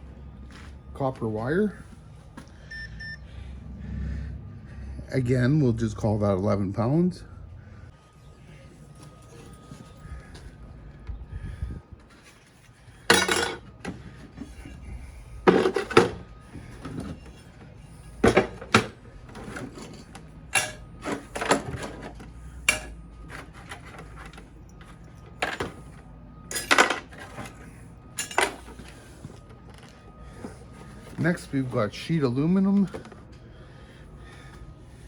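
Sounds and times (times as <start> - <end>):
scrap metal clattering into bucket: 13.0 - 14.7, 15.5 - 17.4, 18.2 - 24.5, 25.4 - 29.0.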